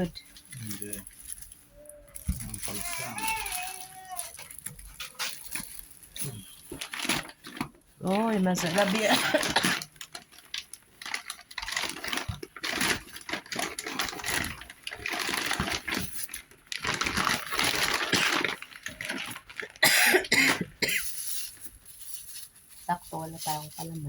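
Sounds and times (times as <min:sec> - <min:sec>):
packaging rustling and crinkling: 0:00.0 - 0:24.0.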